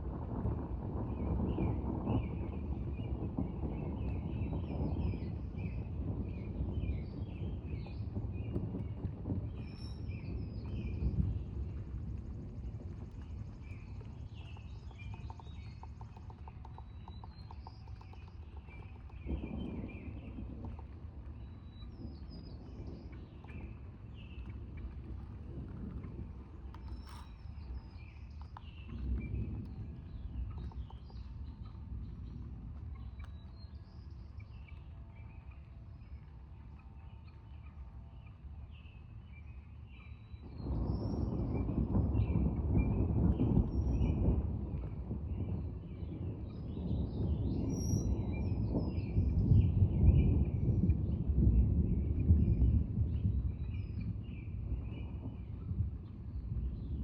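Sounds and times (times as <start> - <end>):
thunder rumble: 0.0 - 57.0
steady low rumble: 3.3 - 47.2.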